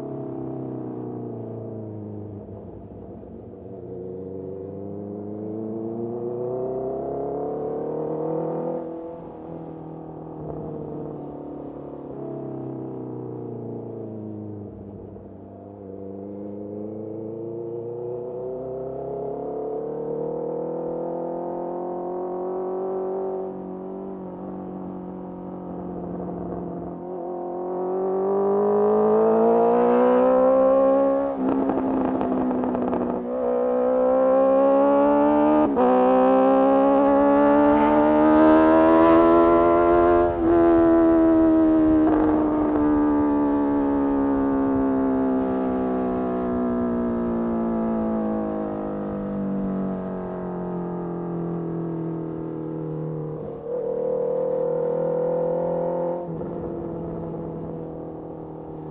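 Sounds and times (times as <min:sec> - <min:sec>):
motorcycle engine revving: 0:18.4 - 0:50.7, 0:52.2 - 0:58.9.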